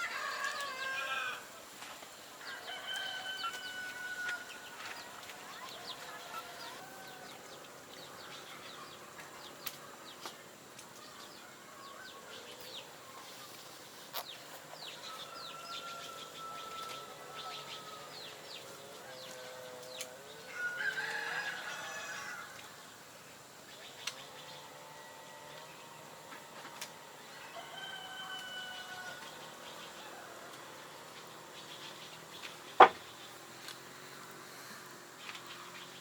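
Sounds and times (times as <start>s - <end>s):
rooster crowing: 0.0s - 1.6s, 2.4s - 5.1s, 14.9s - 22.6s, 24.6s - 31.2s.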